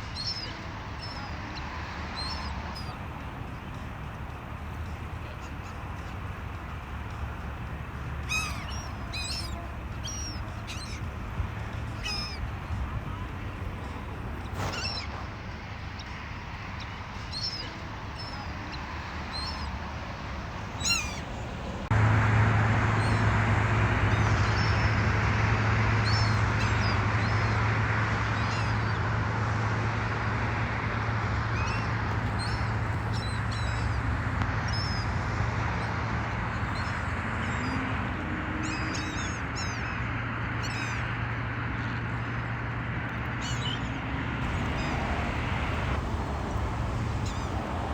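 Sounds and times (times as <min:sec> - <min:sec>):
beach birds calling: 0:00.0 - 0:19.8, 0:20.7 - 0:27.6, 0:31.4 - 0:42.4, 0:43.3 - 0:47.9
steady background rush: 0:01.4 - 0:17.2, 0:44.2 - 0:47.9.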